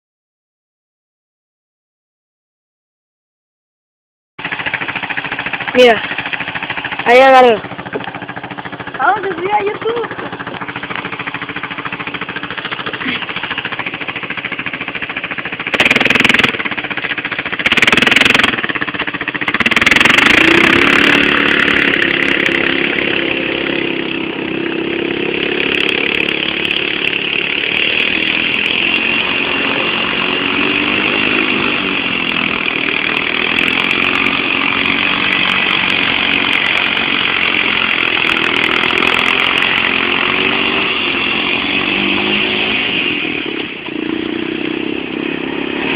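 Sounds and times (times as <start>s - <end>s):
motorcycle engine revving: 4.4s - 45.9s.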